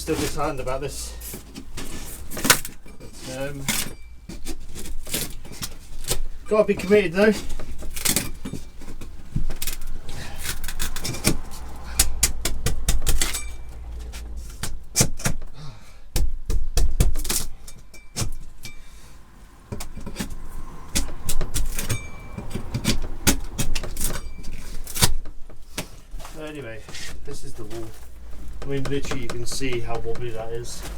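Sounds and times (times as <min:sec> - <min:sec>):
tools knocking and tapping on wood: 0:01.4 - 0:15.5, 0:19.6 - 0:25.9, 0:27.7 - 0:30.5
low rumble: 0:08.6 - 0:14.9.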